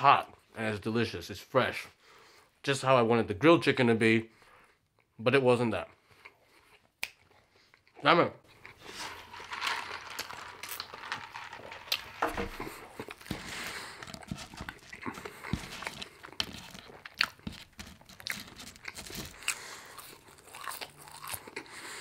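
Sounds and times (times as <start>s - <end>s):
person chewing crunchy food: 6.1s - 22.0s.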